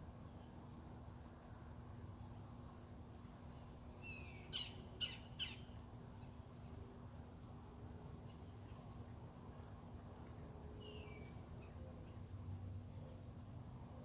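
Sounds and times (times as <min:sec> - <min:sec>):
low background hum: 0:00.0 - 0:14.0
wild birds calling: 0:04.0 - 0:05.8.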